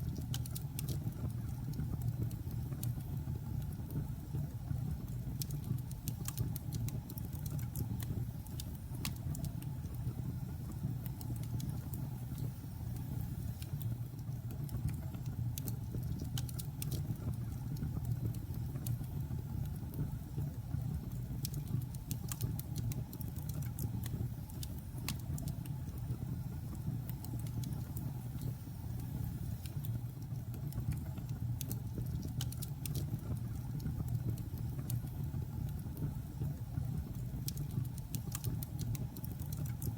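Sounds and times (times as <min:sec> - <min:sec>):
fire rumbling in fireplace: 0:00.0 - 0:39.9
burning logs crackling and popping: 0:21.1 - 0:26.2, 0:26.8 - 0:39.9.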